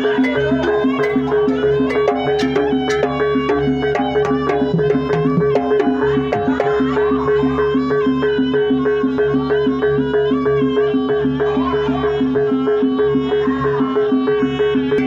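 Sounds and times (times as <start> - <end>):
reedy wind melody: 0.0 - 6.1
steady held tone: 0.0 - 6.9
percussion pattern: 0.0 - 7.0.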